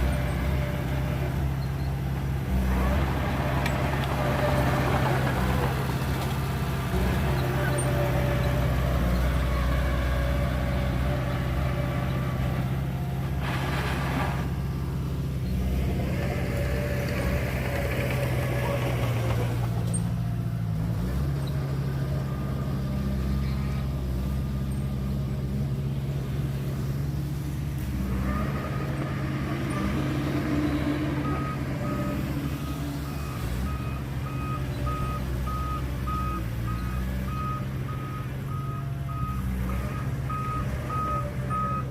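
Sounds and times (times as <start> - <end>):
heavy diesel engines running: 0.0 - 41.9
reversing alarm beeping: 31.2 - 41.9.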